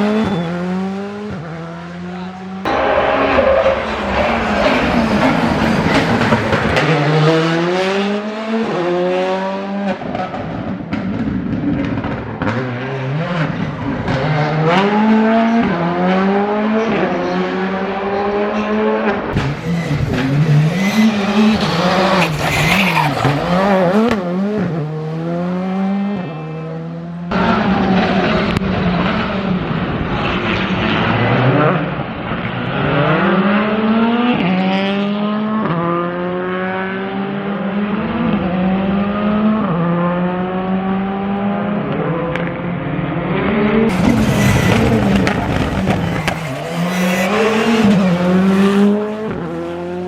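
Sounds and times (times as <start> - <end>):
rally car engine revving: 0.0 - 50.0
exhaust pops: 43.9 - 48.4.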